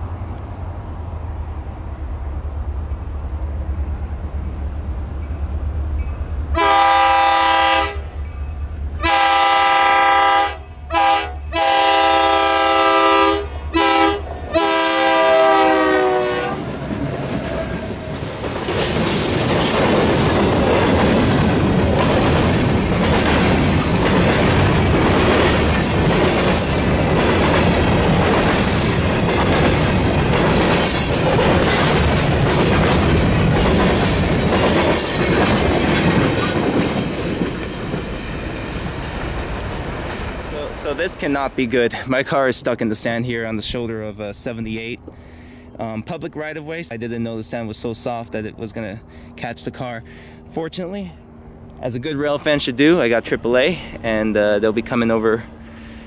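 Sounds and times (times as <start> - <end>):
train rumbling: 0.0 - 56.0
locomotive air horn blasts: 6.5 - 8.1, 9.0 - 16.7
wheels clicking on rails: 16.6 - 41.3.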